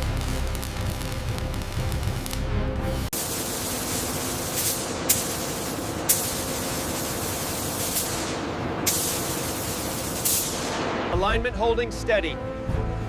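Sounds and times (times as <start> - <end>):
sharp cracks: 0.0 - 2.5, 7.7 - 11.2
music: 0.0 - 3.4, 10.7 - 13.0
steady loud hiss: 0.0 - 11.4.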